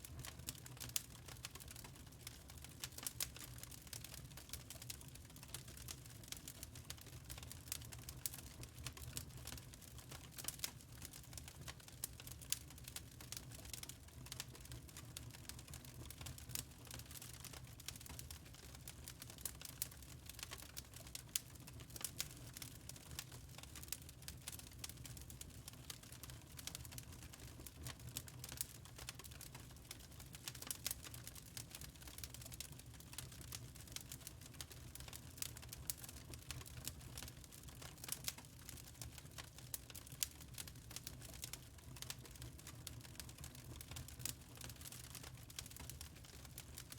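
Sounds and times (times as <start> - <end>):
low rumble of burning: 0.0 - 46.9
wood fire crackling: 0.0 - 46.9.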